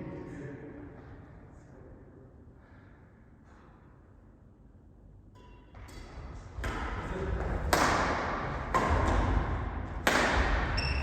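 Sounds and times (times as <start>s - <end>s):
rackets hitting shuttlecock: 7.6s - 10.8s
shoe squeaks: 10.8s - 11.0s.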